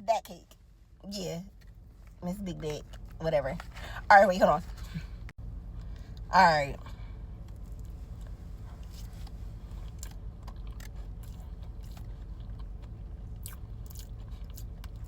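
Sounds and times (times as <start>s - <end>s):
chewing mouth sounds: 7.7s - 15.0s.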